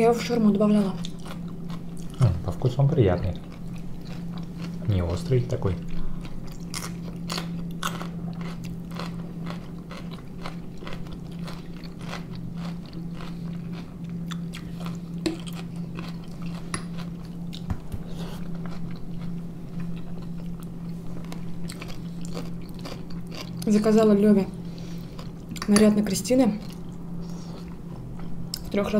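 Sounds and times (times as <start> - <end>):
steady low hum: 0.0 - 28.9
crunchy chewing: 1.0 - 2.4, 3.2 - 23.8, 24.8 - 25.7.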